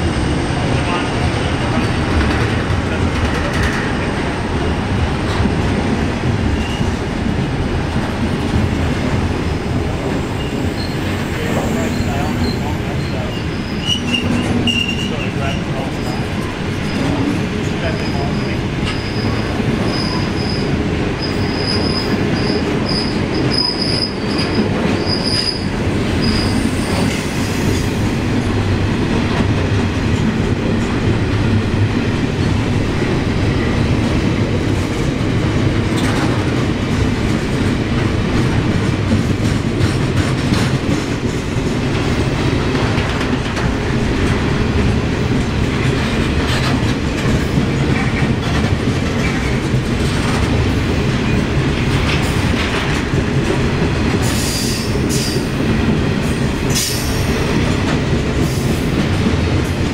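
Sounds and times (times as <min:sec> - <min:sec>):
freight train wheels rumbling: 0:00.0 - 0:59.9
high-pitched wheel squeal: 0:13.5 - 0:15.1.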